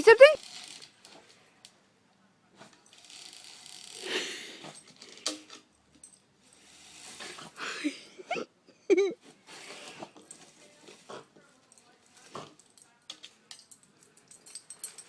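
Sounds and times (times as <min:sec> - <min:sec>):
dog sniffing and snorting: 0:09.3 - 0:11.4.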